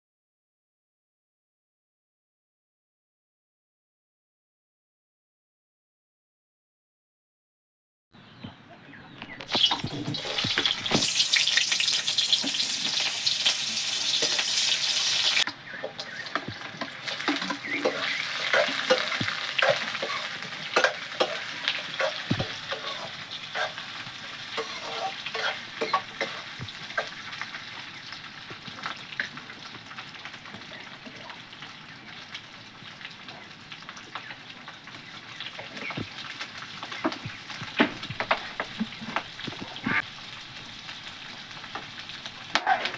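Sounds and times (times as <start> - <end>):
utensil stirring meat: 9.5 - 27.2
meat sizzling in oil: 9.5 - 42.9.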